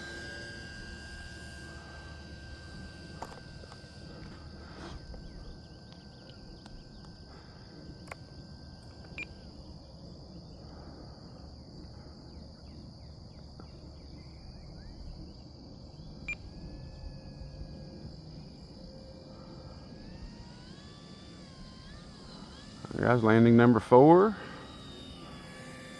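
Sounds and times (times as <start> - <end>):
insect chorus: 0.0 - 25.9
low outdoor rumble: 0.0 - 25.9
model plane motor whine: 0.0 - 25.9
sharp clicks: 5.9 - 7.2, 8.0 - 9.3.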